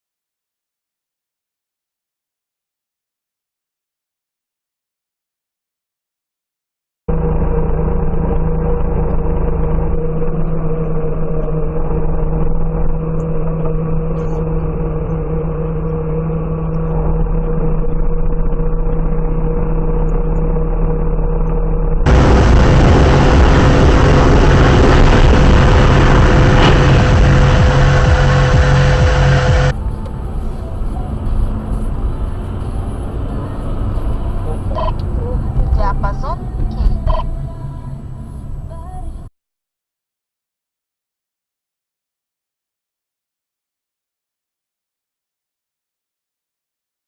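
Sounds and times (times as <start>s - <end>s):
car engine: 7.1s - 39.2s
road noise: 7.1s - 39.3s.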